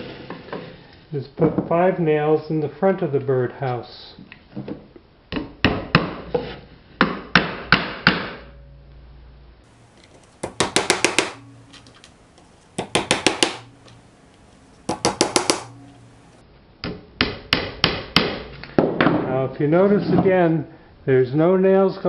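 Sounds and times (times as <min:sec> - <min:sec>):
hammer striking nails into wood: 0:05.4 - 0:06.3, 0:07.0 - 0:08.5, 0:10.4 - 0:11.4, 0:12.8 - 0:13.7, 0:14.9 - 0:15.8, 0:16.8 - 0:19.2.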